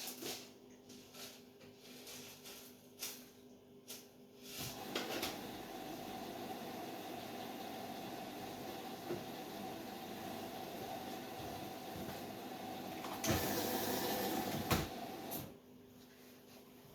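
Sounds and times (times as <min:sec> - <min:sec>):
washing machine humming: 0:04.5 - 0:16.0.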